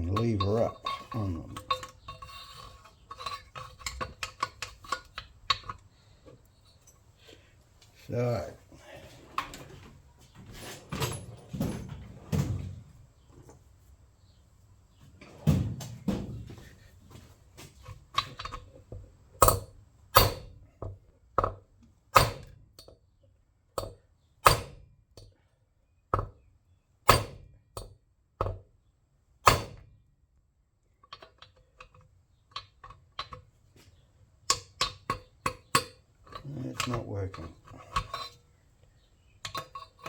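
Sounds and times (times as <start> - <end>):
scraping rattle: 0.0 - 5.8, 36.3 - 38.4.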